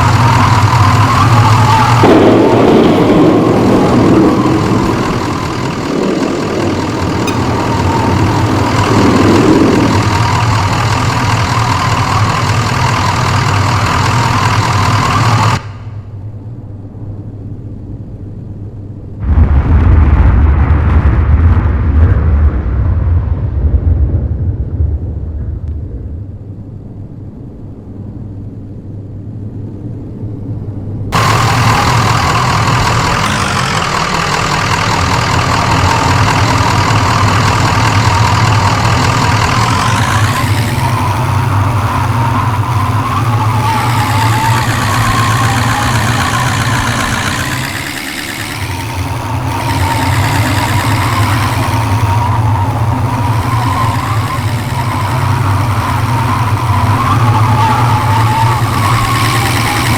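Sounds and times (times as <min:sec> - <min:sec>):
vehicle engine revving: 0:00.0 - 0:15.9, 0:31.2 - 0:59.9.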